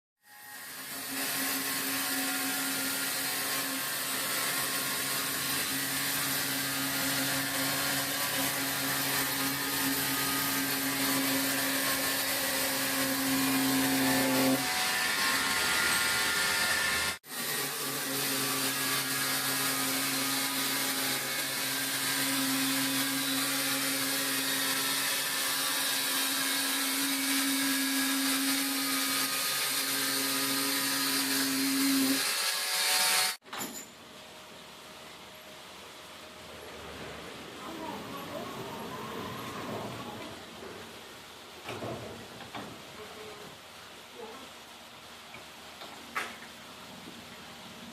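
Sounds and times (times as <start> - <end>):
electric saw running: 0.5 - 33.4.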